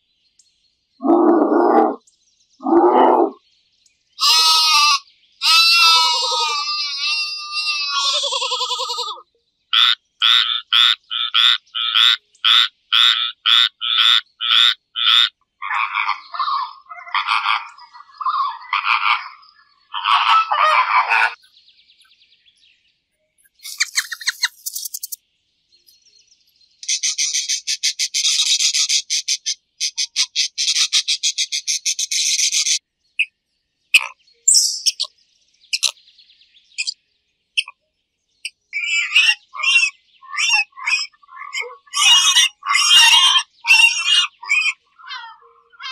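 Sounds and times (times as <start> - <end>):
frog croaking: 1.0 - 2.0, 2.6 - 3.4, 9.8 - 21.4.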